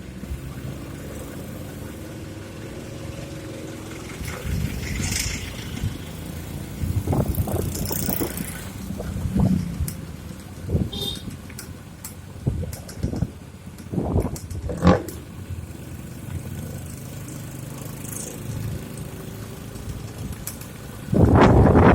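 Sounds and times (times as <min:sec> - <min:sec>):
vehicle engine humming: 0:00.0 - 0:21.9.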